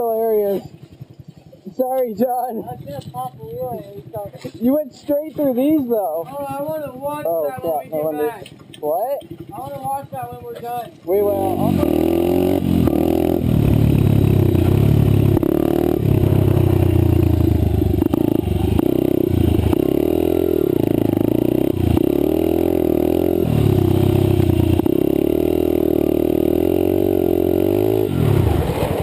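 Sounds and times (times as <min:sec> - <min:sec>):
dirt bike engine revving: 0:06.8 - 0:29.0.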